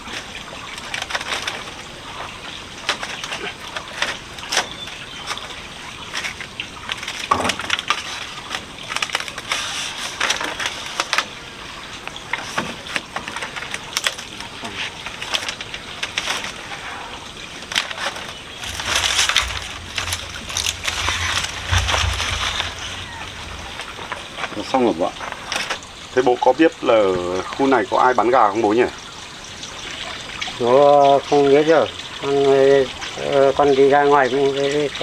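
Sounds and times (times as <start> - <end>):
timber scraping: 0.0 - 11.4, 12.3 - 25.8
wooden knocks and cracks: 0.0 - 25.9.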